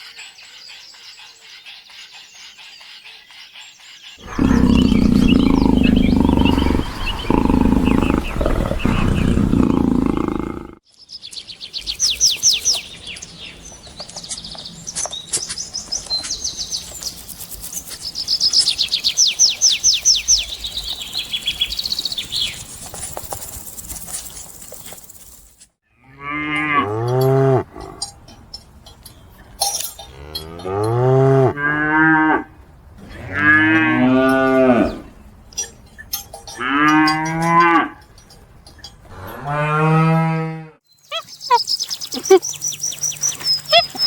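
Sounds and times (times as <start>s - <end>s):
bird trilling: 4.2s - 10.7s, 41.0s - 44.0s
cow mooing: 4.2s - 10.8s.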